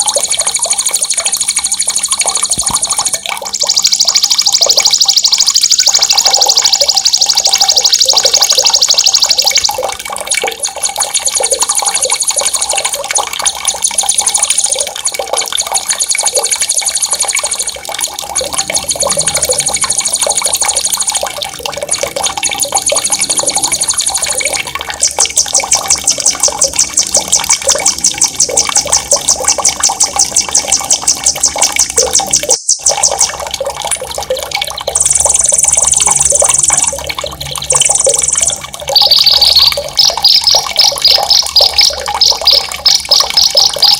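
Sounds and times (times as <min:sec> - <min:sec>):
running water: 0:00.0 - 0:43.9
songbirds trilling: 0:37.7 - 0:43.9.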